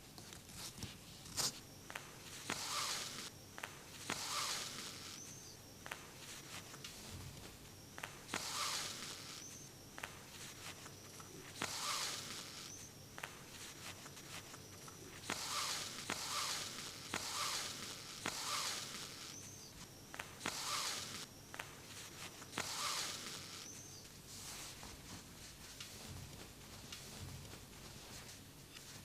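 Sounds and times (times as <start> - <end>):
thread squeak: 22.5 - 24.1.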